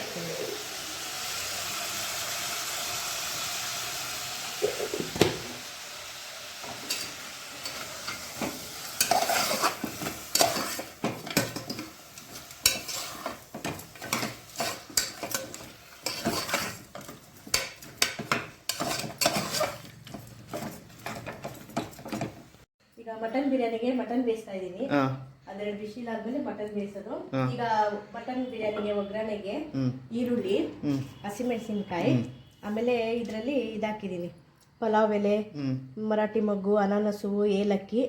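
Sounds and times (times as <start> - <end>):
meat sizzling in hot oil: 0.0 - 19.9
spoon scraping a pot: 6.6 - 22.4.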